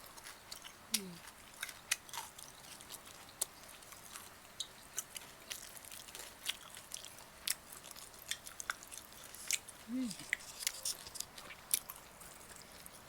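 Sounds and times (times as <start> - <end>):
chewing with wet mouth clicks: 0.0 - 13.0.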